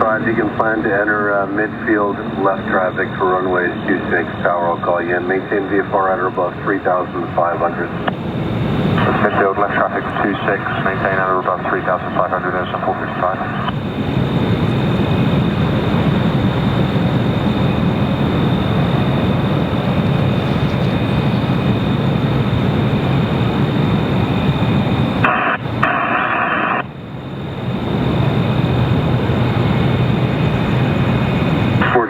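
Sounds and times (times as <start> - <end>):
radio static burst: 0.0 - 8.2, 8.8 - 14.4, 25.2 - 27.0, 31.7 - 32.0
jet engines roaring: 0.0 - 32.0.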